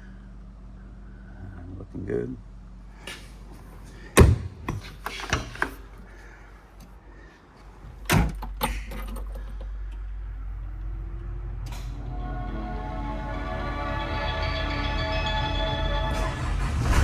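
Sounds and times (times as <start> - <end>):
engine starting and idling: 8.3 - 12.4, 13.9 - 17.0.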